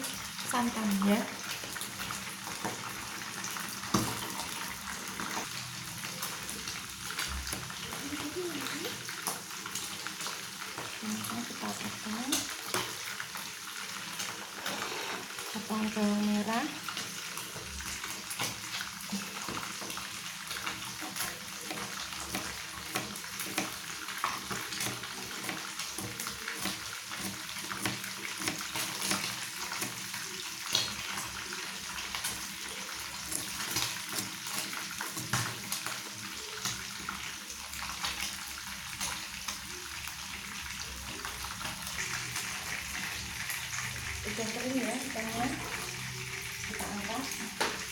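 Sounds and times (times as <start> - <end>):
fish deep-frying in oil: 0.0 - 47.9.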